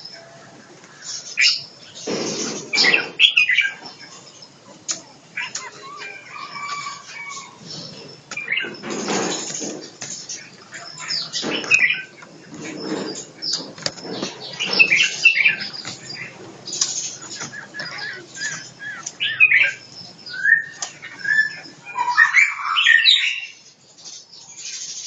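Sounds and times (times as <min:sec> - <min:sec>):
birds chirping and calling: 0:00.0 - 0:25.0
wings fluttering: 0:04.9 - 0:19.4
scratchy movement sounds: 0:11.4 - 0:18.7.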